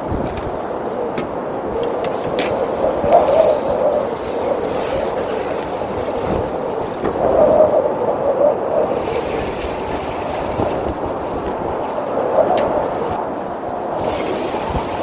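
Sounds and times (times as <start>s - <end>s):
strong wind rushing: 0.0s - 15.0s.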